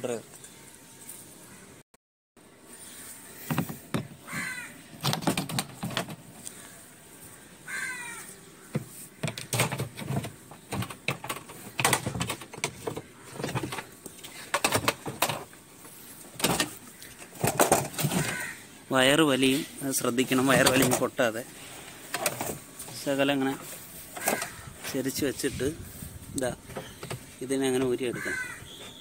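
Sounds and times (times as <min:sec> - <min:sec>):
bird calling: 0:02.6 - 0:05.0, 0:06.4 - 0:09.5, 0:16.0 - 0:18.8, 0:23.3 - 0:24.9, 0:26.6 - 0:29.0
tools and parts clattering: 0:05.0 - 0:06.4, 0:08.7 - 0:15.6, 0:16.3 - 0:18.5, 0:20.3 - 0:21.2, 0:22.0 - 0:25.0.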